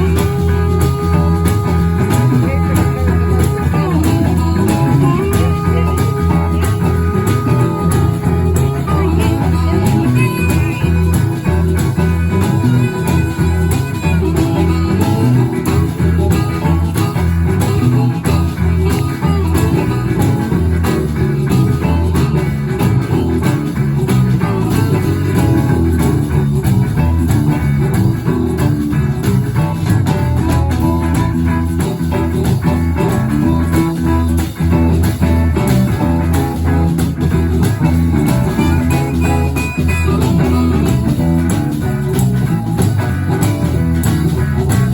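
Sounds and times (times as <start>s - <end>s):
blues band playing: 0.0s - 44.9s
electric guitar: 0.0s - 44.9s.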